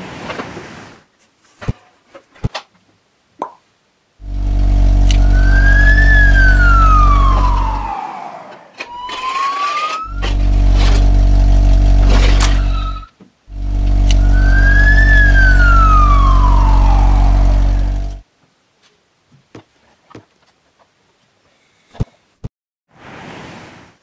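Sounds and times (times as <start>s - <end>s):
loud low engine hum: 4.2s - 9.1s, 10.0s - 18.2s
siren tone rising and falling: 4.2s - 18.2s
short clicks: 5.0s - 5.3s, 14.0s - 15.2s.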